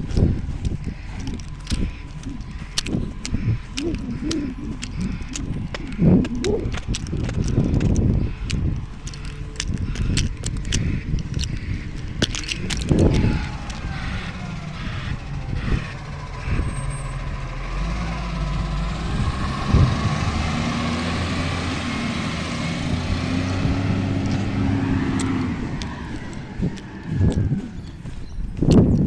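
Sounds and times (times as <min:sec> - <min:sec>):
wavering whine: 0:00.0 - 0:17.6
diesel engine running: 0:00.0 - 0:29.0.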